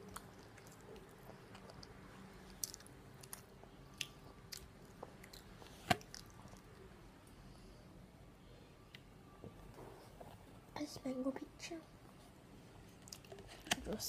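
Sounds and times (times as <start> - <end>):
person chewing: 0.0 - 6.8.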